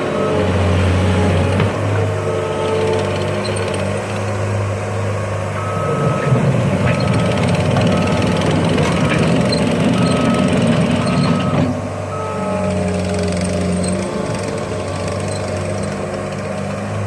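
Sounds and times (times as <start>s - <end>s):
diesel engine running: 0.0s - 17.0s
reverse alarm beeping: 5.5s - 15.5s.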